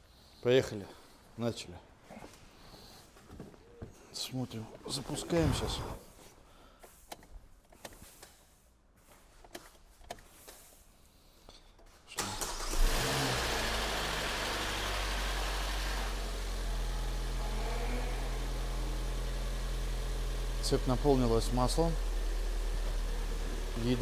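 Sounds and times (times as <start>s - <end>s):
engine cranking and idling: 12.2s - 24.0s.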